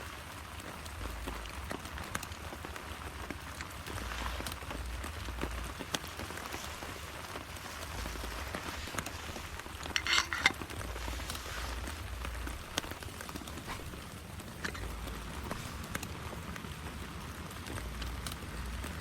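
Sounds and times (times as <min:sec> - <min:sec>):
steady rain: 0:00.0 - 0:19.0
metallic clatter of cookware: 0:09.8 - 0:10.6.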